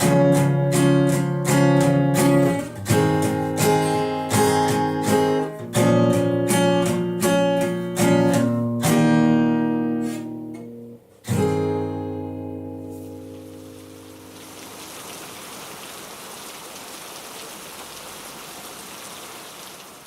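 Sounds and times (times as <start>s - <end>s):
acoustic guitar strumming: 0.0s - 14.8s.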